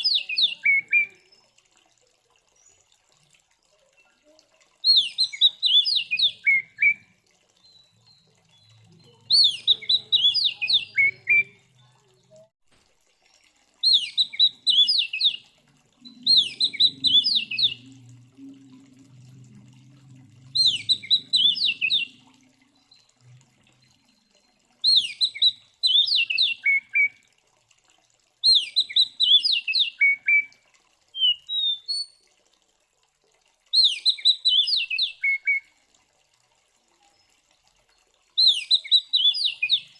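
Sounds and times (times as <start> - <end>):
bird singing whistled phrases: 0.0 - 1.4, 4.8 - 7.0, 9.3 - 11.6, 13.8 - 15.4, 16.0 - 17.8, 20.6 - 22.2, 24.8 - 27.1, 28.4 - 30.5, 31.2 - 32.1, 33.7 - 35.6, 38.4 - 39.9.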